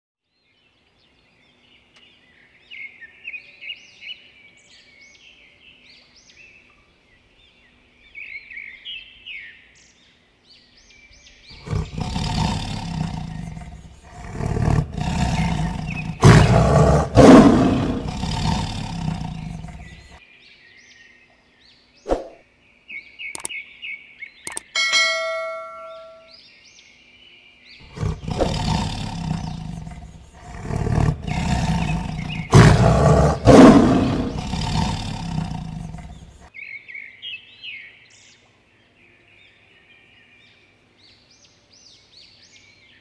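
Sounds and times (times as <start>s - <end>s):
birds chirping: 0.4s - 43.0s
tiger roaring: 11.5s - 20.2s, 27.8s - 36.5s.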